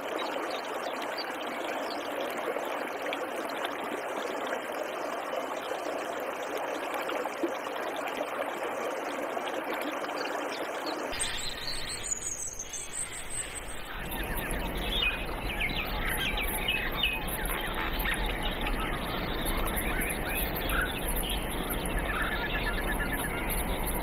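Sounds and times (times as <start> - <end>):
birds chirping: 11.1 - 24.0
background hiss and hum: 11.2 - 24.0
bird trill: 11.2 - 24.0.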